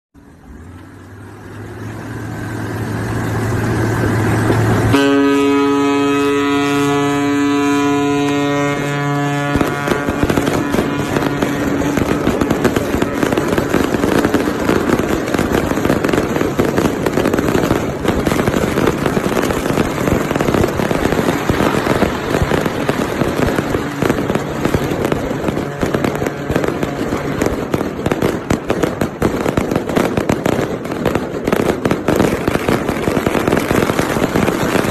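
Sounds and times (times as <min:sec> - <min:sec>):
low drone: 0:00.2 - 0:27.8
firecrackers crackling and popping: 0:00.2 - 0:34.9
ship's horn blast: 0:02.5 - 0:16.8, 0:17.8 - 0:27.7.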